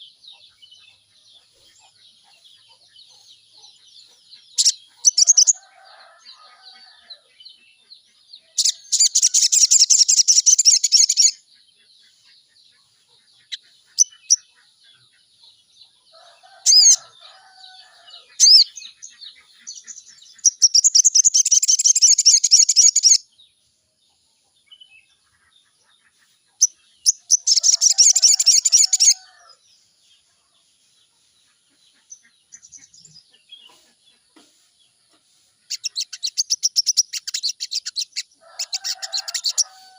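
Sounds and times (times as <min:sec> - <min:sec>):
soft bird chirps: 0:30.2 - 0:39.9.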